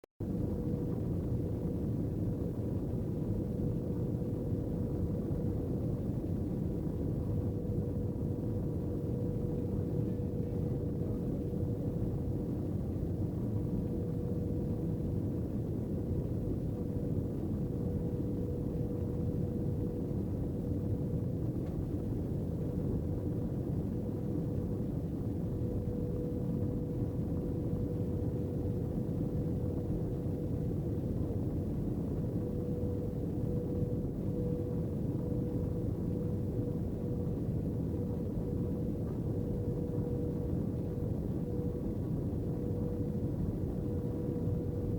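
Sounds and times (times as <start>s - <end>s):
mid-pitched hum: 0.2s - 44.9s
airplane cabin engine rush: 6.2s - 22.2s.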